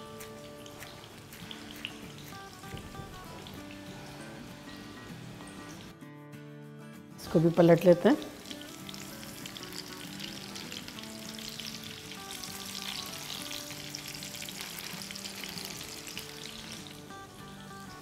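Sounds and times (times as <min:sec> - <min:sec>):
spatula turning food in pan: 0:00.0 - 0:04.6, 0:08.4 - 0:17.0
meat sizzling in oil: 0:00.0 - 0:05.9, 0:08.2 - 0:18.0.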